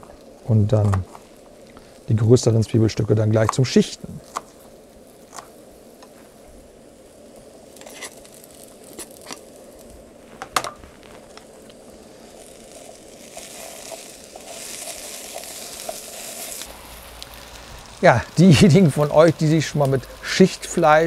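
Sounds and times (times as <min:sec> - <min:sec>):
vegetables sizzling in a pan: 0:00.0 - 0:21.0
wooden spatula stirring: 0:12.3 - 0:17.6.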